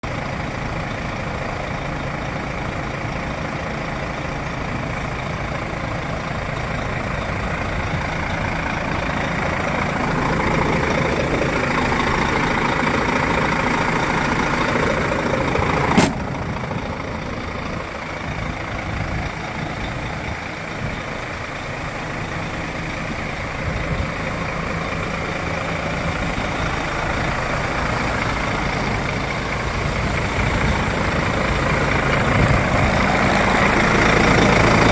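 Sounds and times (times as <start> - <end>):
diesel truck engine idling: 0.0 - 34.9
sharp knock: 16.0 - 16.3.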